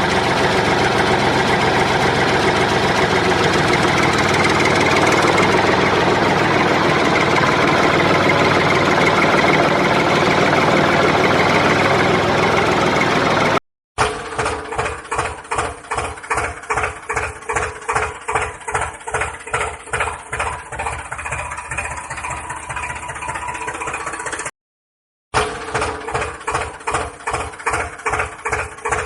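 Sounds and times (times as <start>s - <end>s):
motor running steadily: 0.0s - 13.6s.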